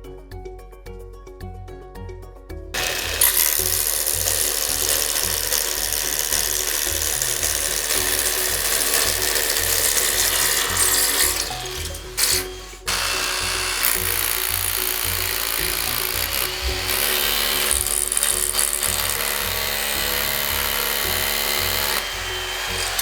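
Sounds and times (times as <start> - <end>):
background music with steady beat: 0.0 - 23.0
power drill driving screws: 2.8 - 23.0.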